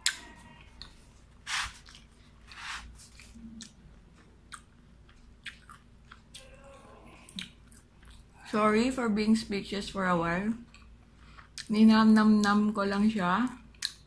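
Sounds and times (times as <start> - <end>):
person chewing crunchy food: 0.0 - 8.4.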